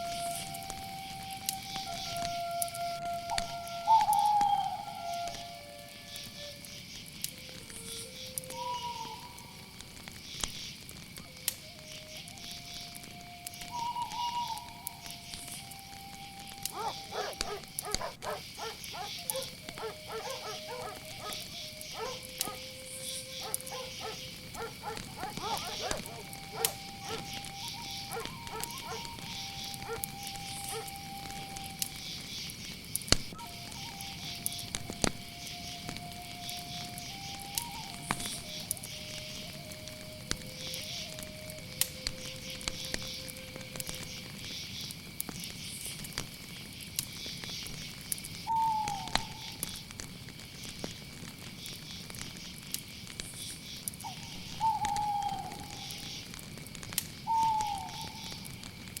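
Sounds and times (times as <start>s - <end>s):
crackling fire with pops: 0.0s - 59.0s
crickets chirring: 0.0s - 59.0s
night bird falling call: 1.6s - 5.6s, 7.4s - 10.8s, 11.8s - 32.6s, 41.9s - 45.0s, 48.4s - 49.8s, 54.0s - 56.4s, 57.2s - 58.6s
sharp cracks: 14.8s - 33.8s
distant dog barks: 16.7s - 22.7s, 23.4s - 27.4s, 28.1s - 30.0s, 30.7s - 30.9s.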